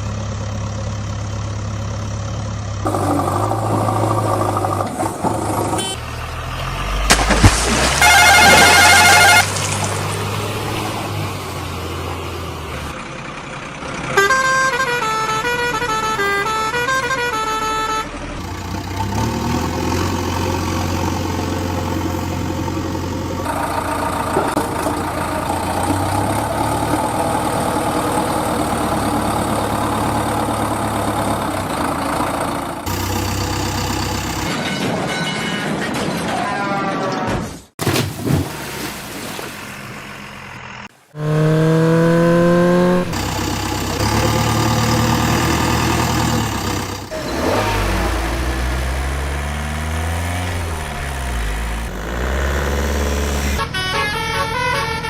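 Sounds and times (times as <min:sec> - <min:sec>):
horn-like tune: 0:08.0 - 0:09.7, 0:14.2 - 0:18.2, 0:41.2 - 0:42.0, 0:53.3 - 0:55.0.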